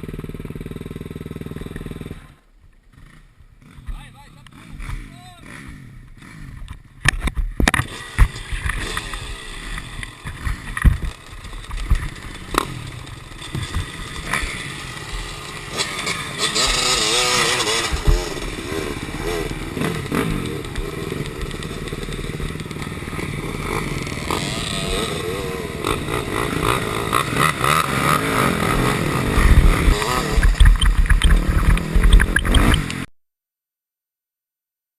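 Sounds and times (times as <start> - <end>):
motocross engine revving: 0.0 - 33.1
bike knocks and clatter: 10.2 - 12.7, 29.4 - 33.0.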